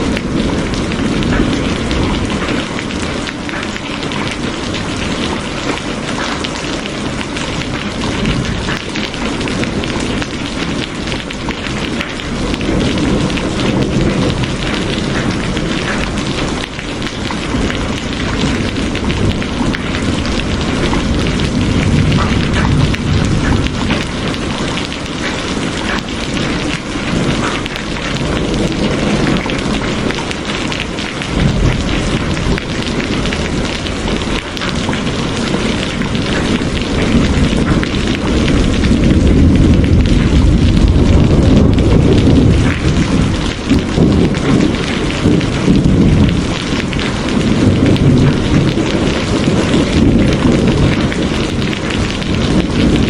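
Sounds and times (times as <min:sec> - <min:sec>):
heavy rain hissing: 0:00.0 - 0:53.0
deep low rumble: 0:36.6 - 0:46.6.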